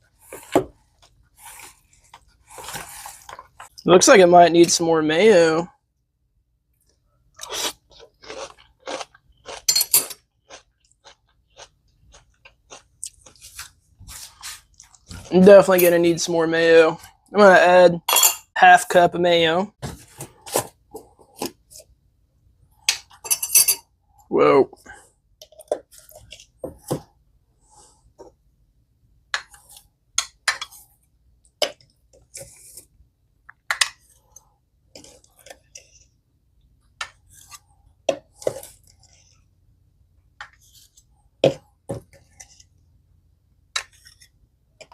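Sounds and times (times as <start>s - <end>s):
spoon scraping a bowl: 23.1s - 23.8s, 34.9s - 36.2s, 37.0s - 39.5s, 42.0s - 42.8s.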